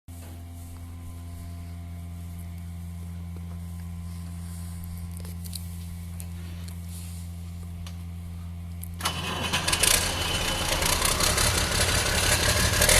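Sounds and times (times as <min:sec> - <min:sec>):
tractor diesel engine idling: 0:08.2 - 0:12.9.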